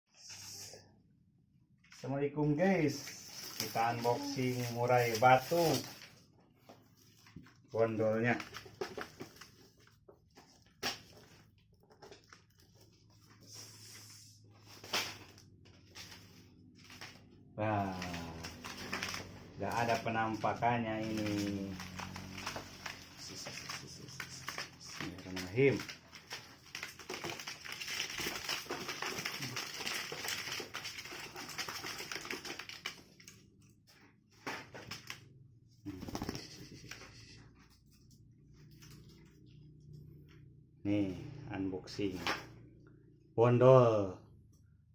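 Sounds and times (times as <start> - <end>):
cardboard box rustling and scratching: 20.8 - 33.0, 35.9 - 36.6.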